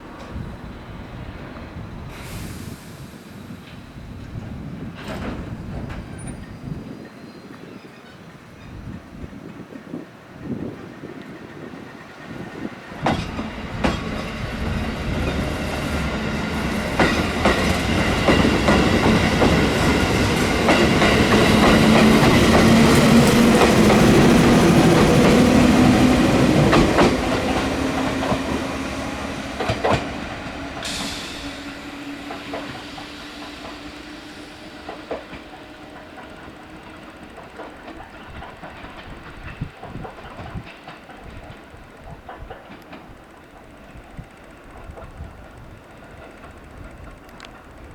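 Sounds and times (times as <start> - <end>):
electric train passing: 0.0 - 7.2, 8.3 - 47.9
sharp hiss: 2.1 - 4.1, 13.2 - 37.8
train wheels clacking over rail joints: 2.4 - 6.7, 11.2 - 47.9.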